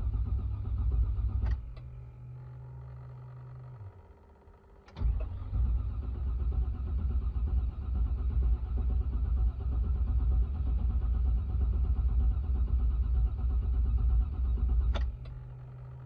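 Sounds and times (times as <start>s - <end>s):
engine cranking without starting: 4.9s - 10.2s.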